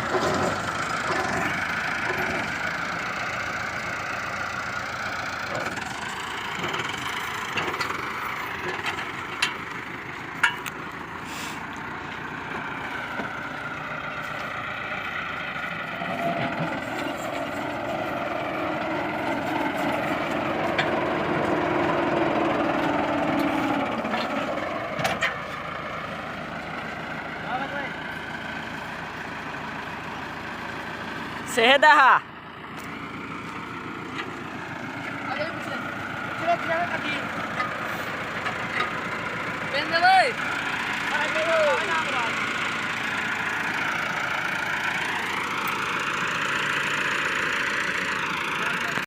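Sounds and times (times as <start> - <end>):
engine running: 0.0 - 49.0.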